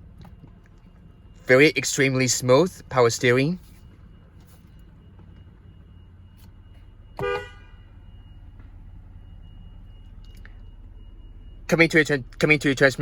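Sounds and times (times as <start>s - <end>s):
low cabin hum: 0.0s - 13.0s
car horn toot: 7.2s - 7.9s.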